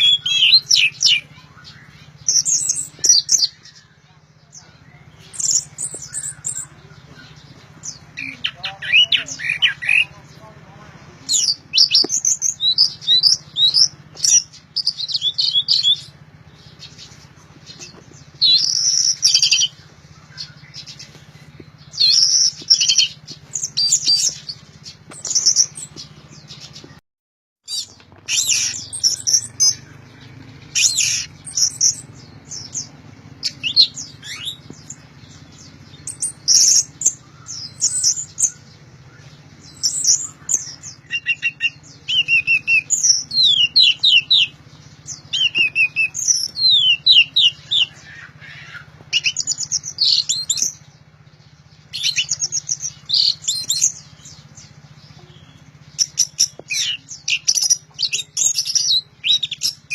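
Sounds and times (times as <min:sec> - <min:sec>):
thrush singing: 0:00.0 - 0:27.0, 0:27.7 - 0:59.9
low hum: 0:27.7 - 0:59.9.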